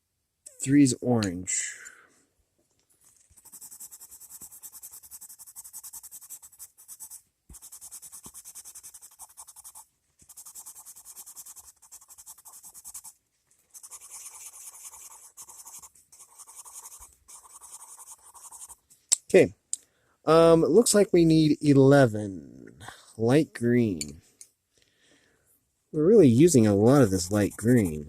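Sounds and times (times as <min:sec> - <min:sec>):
pencil scratching on paper: 0:03.2 - 0:18.8, 0:26.8 - 0:28.0.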